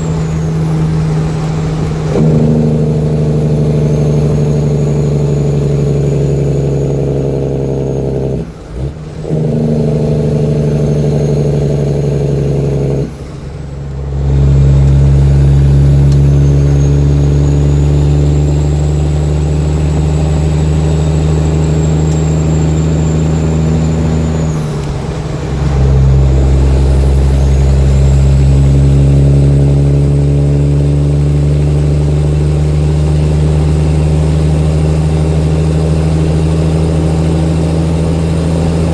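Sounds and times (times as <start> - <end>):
diesel truck engine pulling hard: 0.0 - 38.9.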